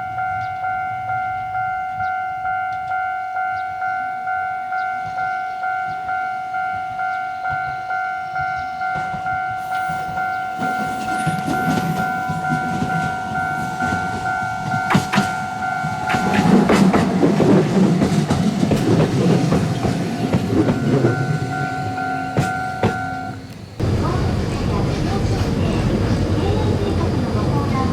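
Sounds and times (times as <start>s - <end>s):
level crossing alarm ringing: 0.0s - 27.9s
train passing on rails: 0.0s - 27.9s
wheels clicking over rail joints: 8.5s - 27.9s.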